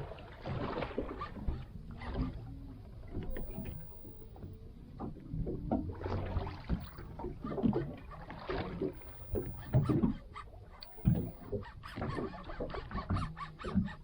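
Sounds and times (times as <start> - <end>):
water splashing: 0.0 - 2.5, 3.1 - 14.0
knocks on a boat: 11.0 - 11.4.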